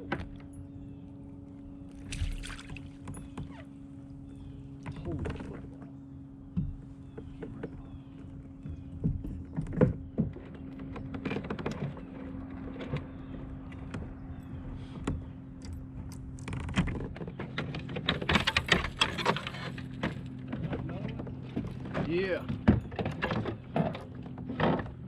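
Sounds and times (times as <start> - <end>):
steady low hum: 0.0 - 25.0
gear knocking and rattling: 16.0 - 25.0.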